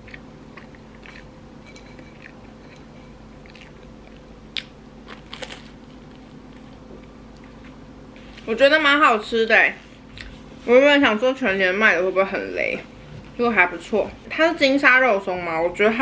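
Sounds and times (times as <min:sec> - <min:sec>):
person chewing toast: 0:00.0 - 0:07.8
crunchy bite of toast: 0:03.5 - 0:06.6.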